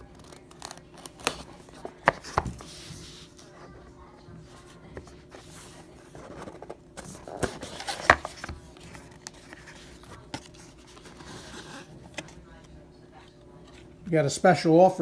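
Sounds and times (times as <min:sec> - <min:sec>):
cardboard packaging rustling: 0:04.6 - 0:12.6.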